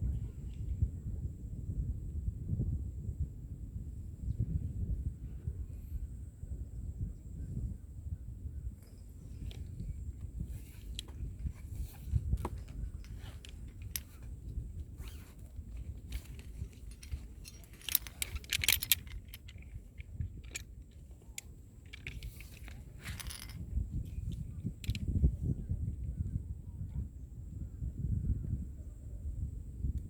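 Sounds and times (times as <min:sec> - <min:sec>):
metal climbing gear clinking: 0:08.8 - 0:25.1.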